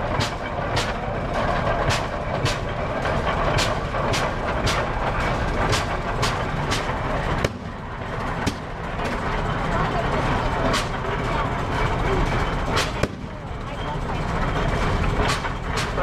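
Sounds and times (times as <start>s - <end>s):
tractor engine running slowly: 0.0s - 16.0s
exhaust popping: 5.5s - 9.5s.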